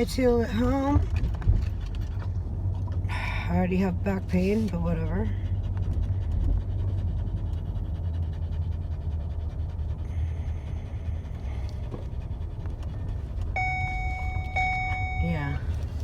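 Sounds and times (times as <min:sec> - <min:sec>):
steady low rumble: 0:00.0 - 0:16.0
panting: 0:04.6 - 0:13.4.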